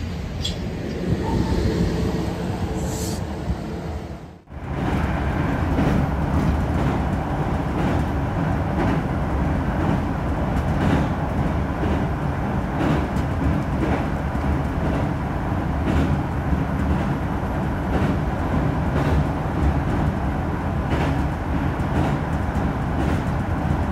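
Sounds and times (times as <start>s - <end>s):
rail-joint clicks: 0.0s - 1.4s
electric train rumbling: 0.0s - 23.9s.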